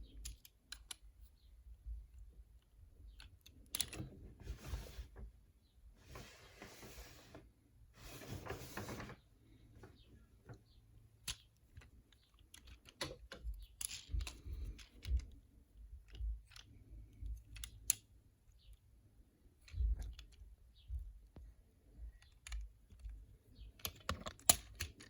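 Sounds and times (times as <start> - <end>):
plastic toy clicks and taps: 23.8 - 25.0.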